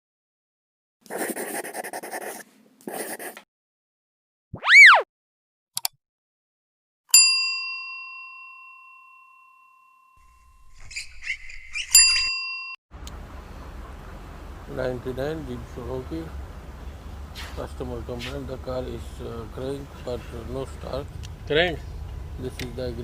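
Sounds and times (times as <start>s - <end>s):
tone sweeping up and down: 4.6s - 5.1s
bell-like ding: 7.1s - 10.5s.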